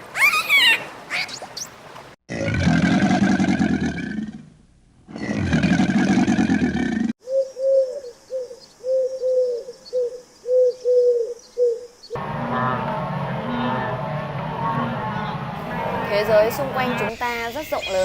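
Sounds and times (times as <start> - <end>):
pigeon cooing: 7.2 - 11.9.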